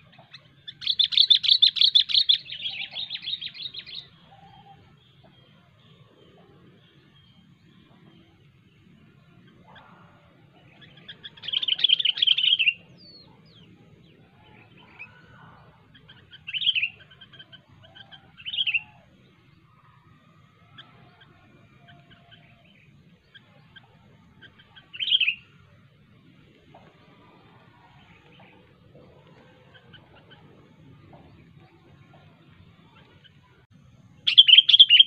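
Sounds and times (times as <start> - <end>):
bird sharp calls: 0.0 - 5.4, 9.4 - 19.3, 20.5 - 25.7, 34.2 - 35.0
bird chattering song: 0.0 - 5.5, 9.4 - 19.0, 20.6 - 25.7, 34.2 - 35.0.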